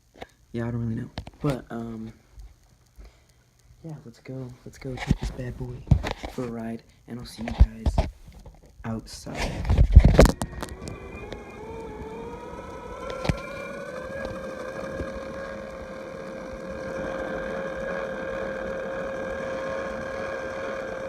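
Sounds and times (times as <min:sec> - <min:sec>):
electric motor whining: 0:09.3 - 0:21.0.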